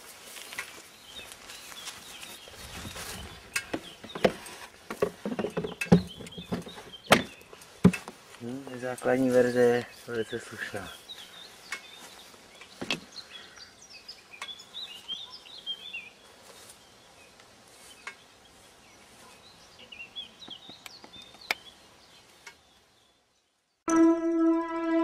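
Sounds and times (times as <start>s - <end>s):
small birds twittering: 0.1s - 23.9s.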